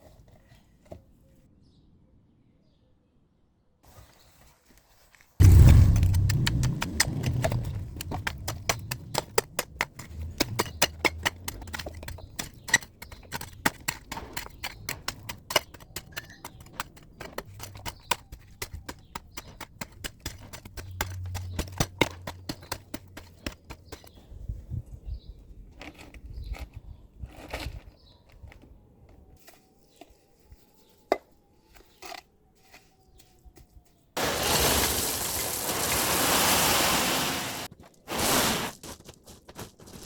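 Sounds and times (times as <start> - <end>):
sharp knocks and clicks: 5.4 - 24.1.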